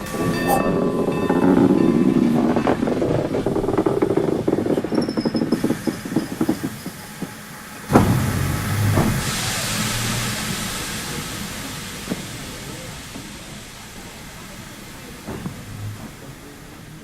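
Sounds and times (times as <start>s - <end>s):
train wheels clattering on rails: 0.0s - 17.0s
low rumble with hiss: 5.8s - 17.0s.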